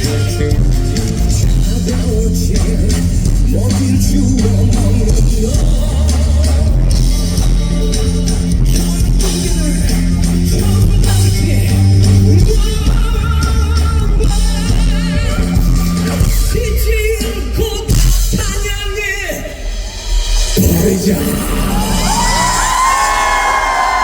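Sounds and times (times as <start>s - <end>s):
person singing: 0.0s - 18.6s, 20.6s - 24.0s
live rock band playing: 0.0s - 18.7s.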